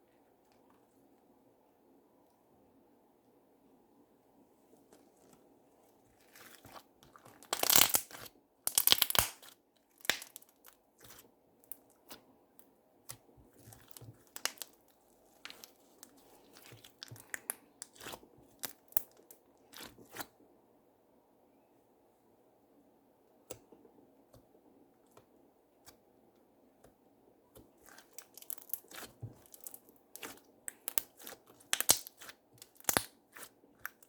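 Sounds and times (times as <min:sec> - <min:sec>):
slime crackling and popping: 0:06.2 - 0:12.2, 0:13.0 - 0:20.3, 0:27.8 - 0:34.0.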